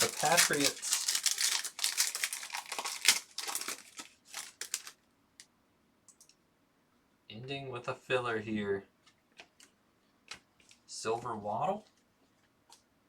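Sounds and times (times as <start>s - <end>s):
card wrappers crinkling: 0.0s - 5.0s.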